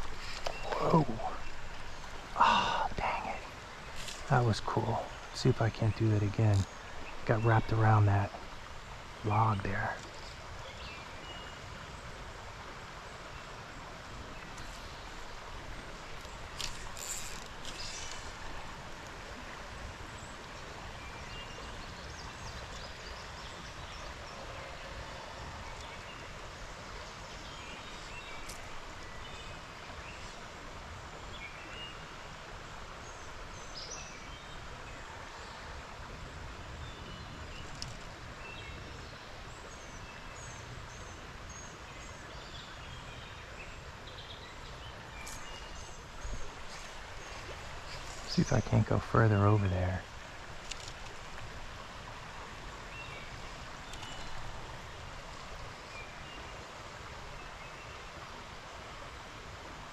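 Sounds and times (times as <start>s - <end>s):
flowing creek water: 0.0s - 59.9s.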